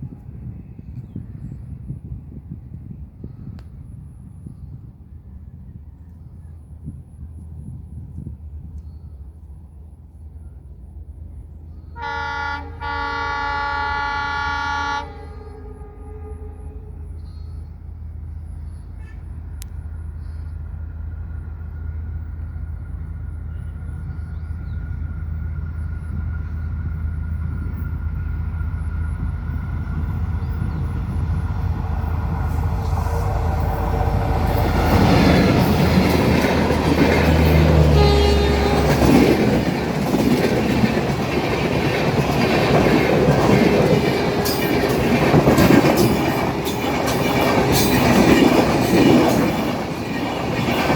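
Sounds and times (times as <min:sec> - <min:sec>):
passenger train rumble: 0:00.0 - 0:50.9
wheels clacking over rail joints: 0:32.0 - 0:50.9.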